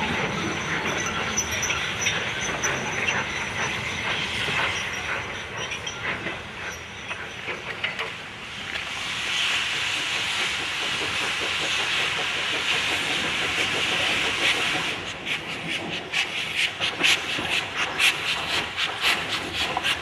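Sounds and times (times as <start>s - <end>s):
train wheels clicking over rail joints: 0.0s - 20.0s
steam hiss: 8.9s - 20.0s.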